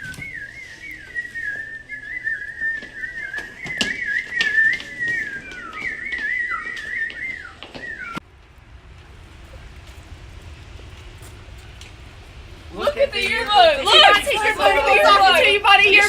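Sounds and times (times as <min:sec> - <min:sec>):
warbling whistle: 0:00.0 - 0:08.2, 0:12.8 - 0:16.0.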